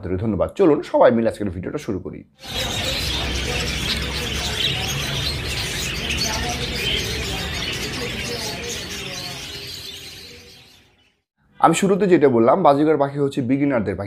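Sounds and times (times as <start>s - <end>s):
budgerigars chattering: 2.4s - 11.1s.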